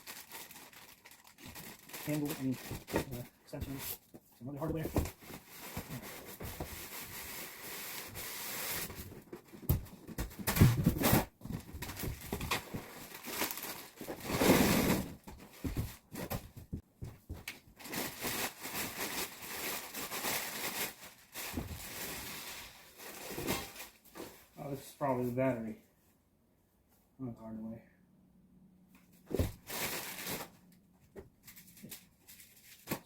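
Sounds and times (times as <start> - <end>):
packaging rustling and crinkling: 0.0 - 3.8, 4.6 - 16.6, 17.3 - 24.4, 29.3 - 30.6.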